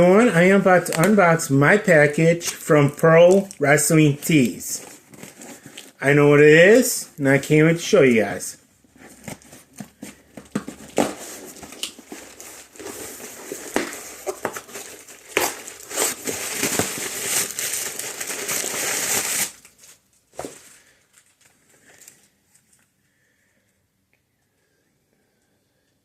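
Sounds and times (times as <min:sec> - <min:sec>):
packaging crinkling and tearing: 0:00.0 - 0:06.0, 0:09.0 - 0:22.9.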